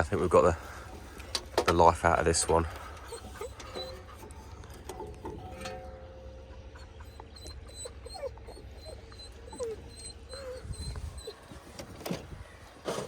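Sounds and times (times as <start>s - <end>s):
dog whimpering: 3.0s - 4.3s, 6.5s - 11.6s.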